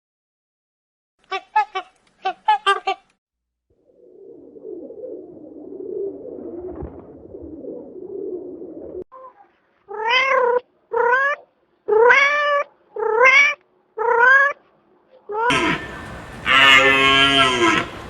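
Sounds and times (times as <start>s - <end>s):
low continuous sound: 15.5s - 18.0s.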